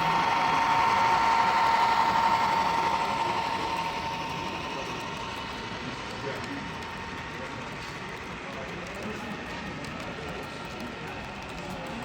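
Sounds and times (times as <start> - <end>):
model train motor whine: 0.0 - 8.8.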